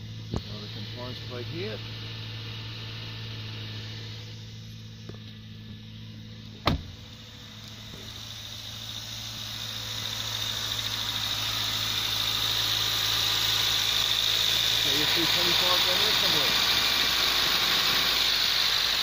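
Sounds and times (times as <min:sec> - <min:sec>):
car engine idling: 0:00.0 - 0:19.0
sharp knock: 0:06.6 - 0:06.9.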